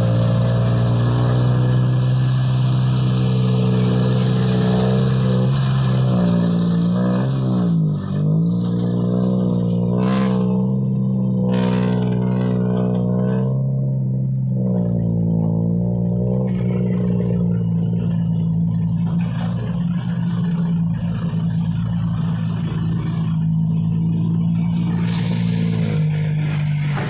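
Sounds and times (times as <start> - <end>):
dump truck engine under load: 0.0 - 27.0.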